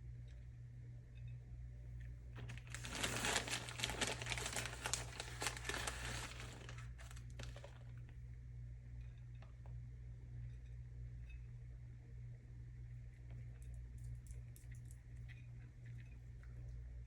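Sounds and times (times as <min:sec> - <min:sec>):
low steady hum: 0:00.0 - 0:17.0
plastic packaging crinkling: 0:02.4 - 0:08.1.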